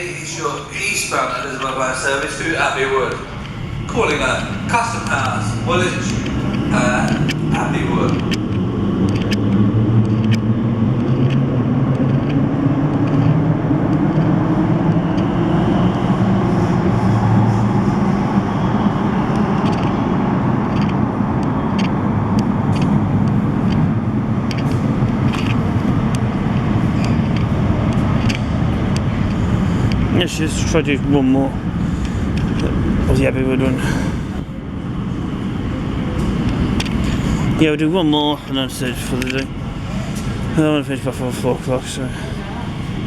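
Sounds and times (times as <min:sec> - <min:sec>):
electric train rumble: 0:00.0 - 0:43.0
faint clicks: 0:20.7 - 0:30.1, 0:31.8 - 0:32.8, 0:35.4 - 0:37.6.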